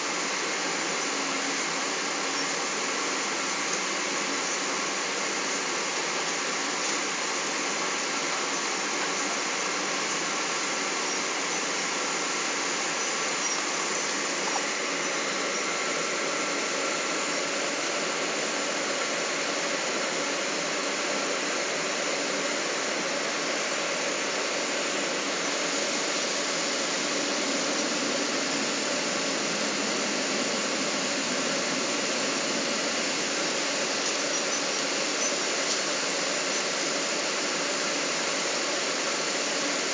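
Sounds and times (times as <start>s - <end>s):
faint steady whine: 0.0s - 39.9s
airplane cabin airflow and engine: 10.9s - 39.9s.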